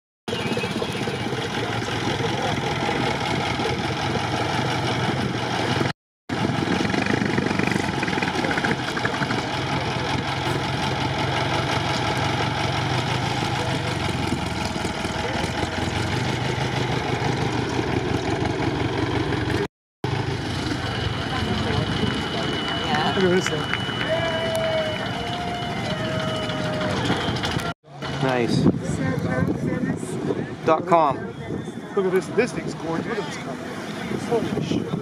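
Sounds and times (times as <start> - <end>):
racing car engine at low speed: 0.3 - 24.1.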